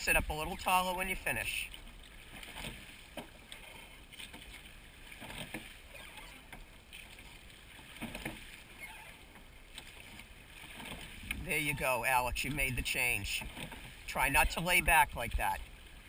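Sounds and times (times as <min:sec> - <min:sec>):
oars dipping in water: 0:00.0 - 0:16.0
wind: 0:00.0 - 0:16.0.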